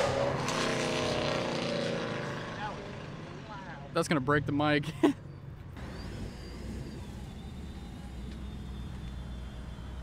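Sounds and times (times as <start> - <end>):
car engine rumbling: 0.0 - 10.0
high-pitched whine: 5.8 - 10.0.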